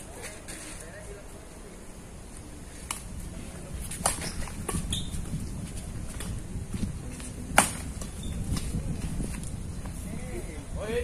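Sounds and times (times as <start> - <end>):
wind buffeting microphone: 2.2 - 11.0
racket hitting shuttlecock: 7.5 - 8.0.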